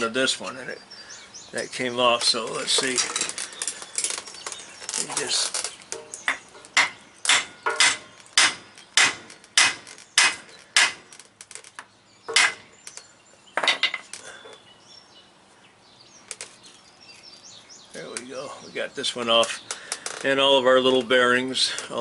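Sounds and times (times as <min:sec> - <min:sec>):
hammer striking steel: 0:06.0 - 0:11.0, 0:12.3 - 0:12.6.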